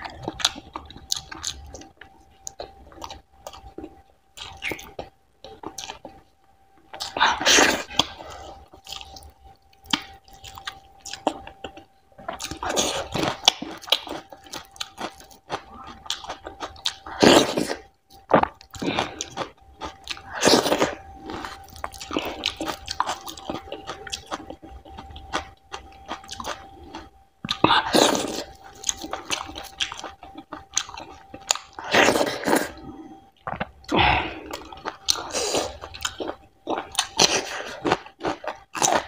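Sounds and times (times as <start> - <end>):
wet chewing and mouth sounds: 0.0 - 39.0.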